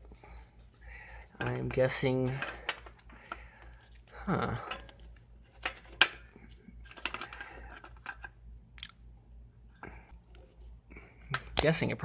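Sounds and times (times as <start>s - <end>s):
clicks and rattling of parts: 1.2s - 9.0s.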